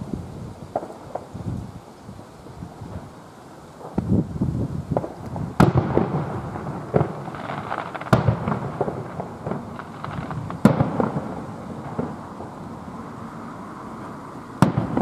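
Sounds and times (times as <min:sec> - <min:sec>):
firework pops and crackles: 0:00.0 - 0:13.0, 0:14.5 - 0:15.0
firework sharp bangs: 0:00.7 - 0:01.4, 0:04.9 - 0:15.0.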